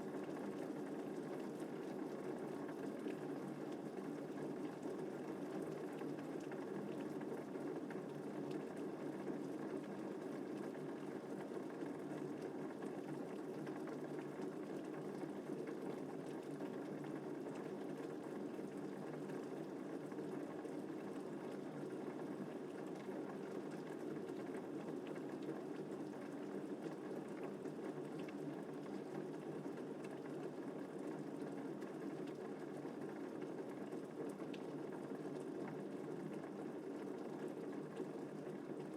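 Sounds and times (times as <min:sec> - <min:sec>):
steady rain: 0:00.1 - 0:38.9.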